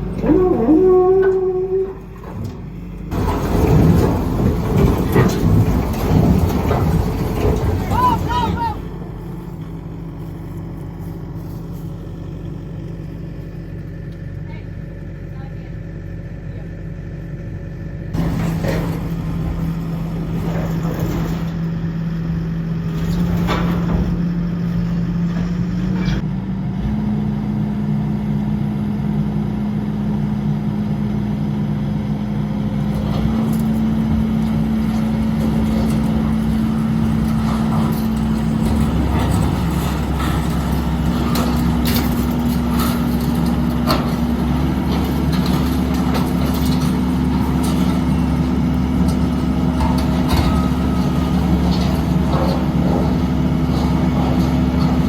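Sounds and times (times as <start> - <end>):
knocks and clanks: 0.0 - 9.9, 18.2 - 21.8, 22.9 - 26.2, 32.9 - 55.0
skid steer engine running hard: 0.0 - 55.0.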